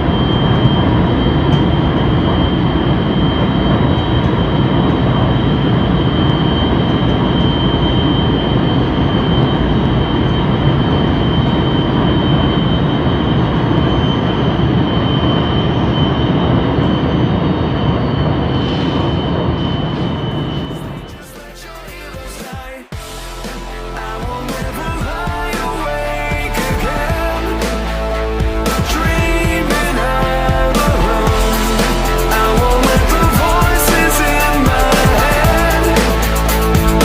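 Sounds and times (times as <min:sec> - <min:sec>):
light-rail train running: 0:00.0 - 0:21.9.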